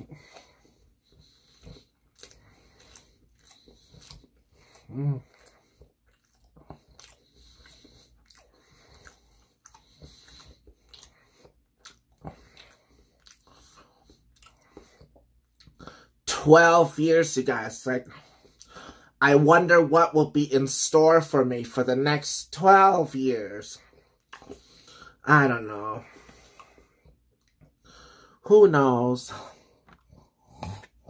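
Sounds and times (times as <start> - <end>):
person chewing wet mouth clicks: 1.6 - 15.8, 24.2 - 24.6.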